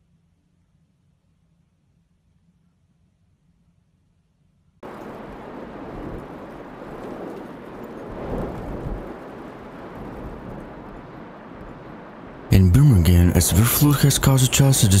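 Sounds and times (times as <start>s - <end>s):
heavy rain rushing: 4.8s - 15.0s
low rumble: 4.8s - 15.0s.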